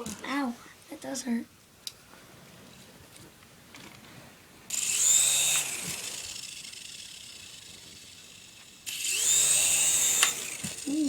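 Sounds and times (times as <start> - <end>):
toy helicopter motor whine: 4.7 - 11.0.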